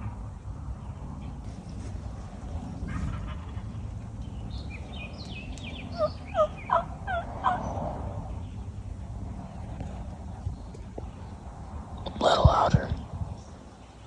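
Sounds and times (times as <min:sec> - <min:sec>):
turkey call yelps: 0:05.9 - 0:07.6.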